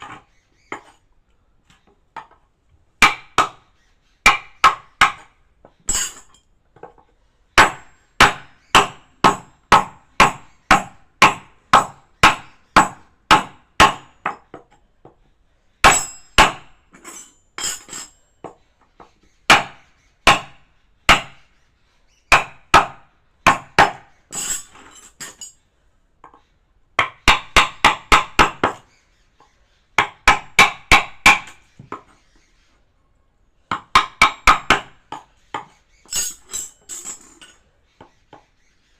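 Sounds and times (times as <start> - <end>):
mallet striking chisel: 33.7 - 36.6.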